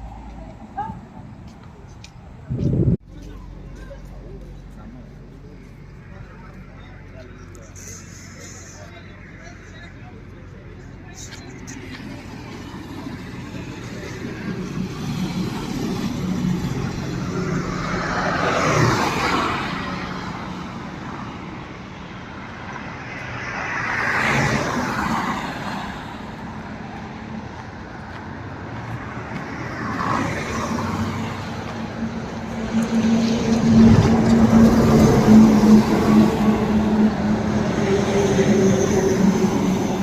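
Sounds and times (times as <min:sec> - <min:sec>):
bus diesel engine running: 0:00.0 - 0:18.9
tyre and road noise: 0:00.0 - 0:40.0.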